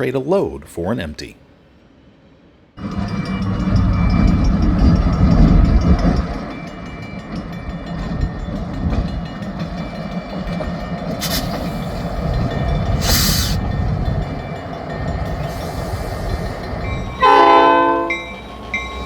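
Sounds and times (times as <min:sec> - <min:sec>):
diesel locomotive engine rumble: 0:02.8 - 0:19.0
rail cars clicking and clanking: 0:02.8 - 0:19.0.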